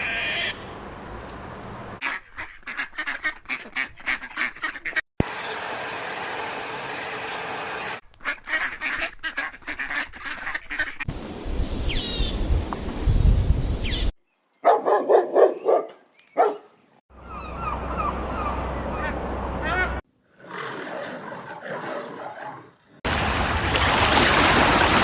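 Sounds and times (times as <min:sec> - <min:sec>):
waterfowl honking and quacking: 0:08.2 - 0:13.0.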